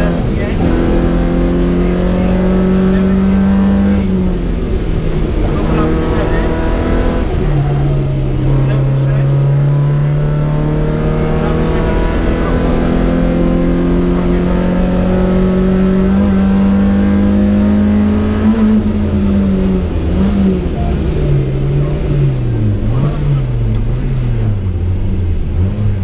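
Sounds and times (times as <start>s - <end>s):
car engine revving under load: 0.0s - 26.0s.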